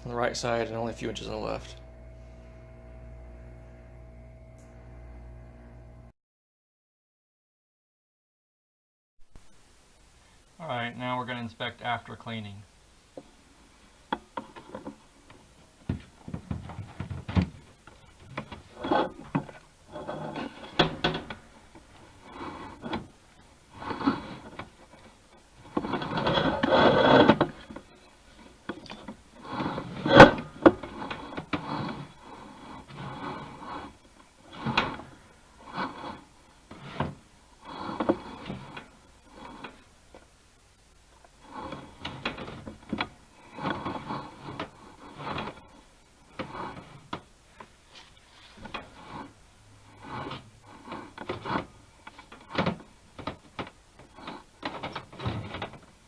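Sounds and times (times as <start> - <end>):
cable scraping inside duct: 0.0 - 6.1, 16.1 - 40.3, 41.2 - 56.0.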